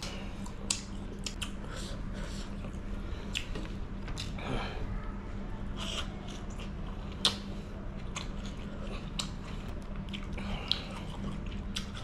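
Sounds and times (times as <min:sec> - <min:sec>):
low steady hum: 0:00.0 - 0:12.0
close chewing: 0:05.8 - 0:12.0.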